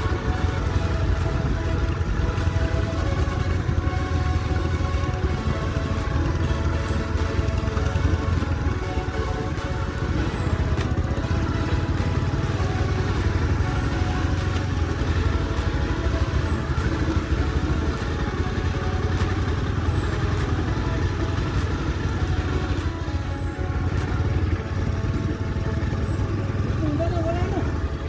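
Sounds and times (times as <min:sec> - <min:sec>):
motorcycle rumbling: 0:00.0 - 0:28.0.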